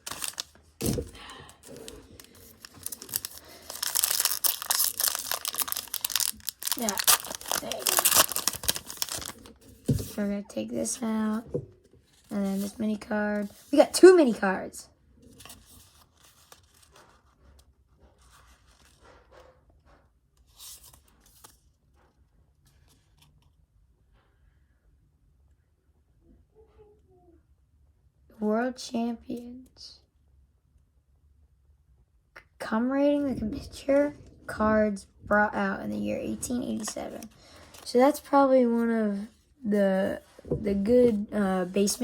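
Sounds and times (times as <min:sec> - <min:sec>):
plastic packaging crinkling: 0:00.0 - 0:10.2, 0:36.2 - 0:38.3
rustling of cards and wrapping: 0:00.0 - 0:11.4, 0:12.0 - 0:14.5, 0:15.2 - 0:19.4, 0:20.4 - 0:23.5, 0:33.5 - 0:39.4, 0:40.1 - 0:42.0.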